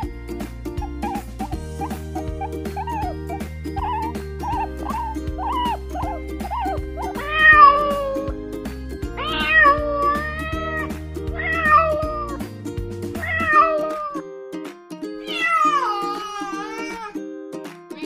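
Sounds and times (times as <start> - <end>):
background music: 0.0 - 18.0
cat meowing: 3.8 - 8.3, 9.2 - 12.3, 13.2 - 14.2, 15.2 - 17.2.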